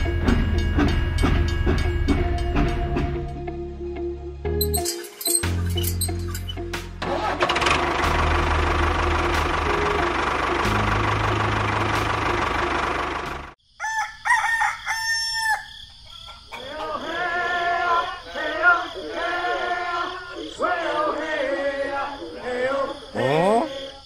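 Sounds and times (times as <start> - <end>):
engine-like sound effect: 7.0 - 13.6
rooster crowing: 13.7 - 22.9
chicken calls: 13.7 - 24.0.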